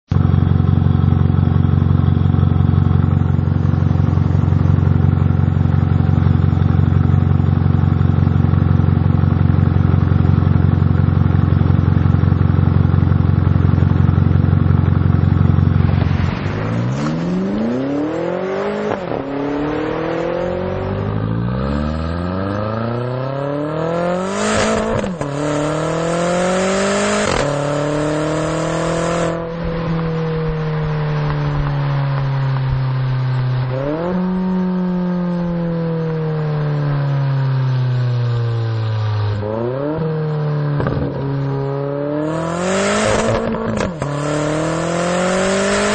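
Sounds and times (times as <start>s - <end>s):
car engine idling: 0.1s - 26.7s
engine revving: 13.6s - 45.9s.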